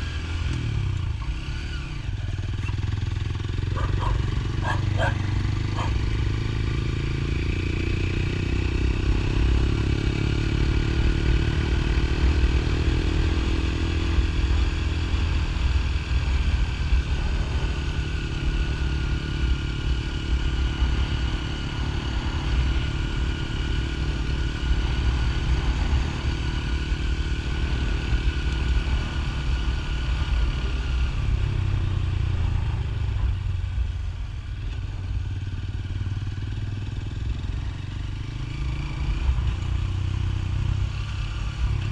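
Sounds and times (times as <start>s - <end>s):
motorcycle engine rumble: 0.0s - 41.9s.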